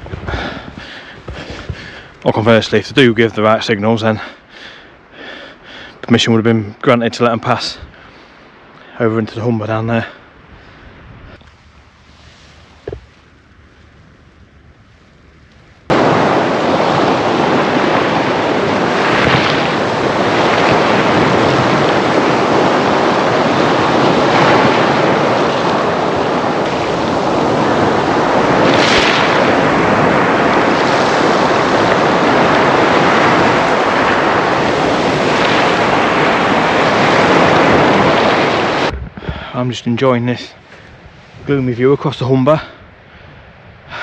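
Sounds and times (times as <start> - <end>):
sea waves breaking on shore: 7.2 - 39.0.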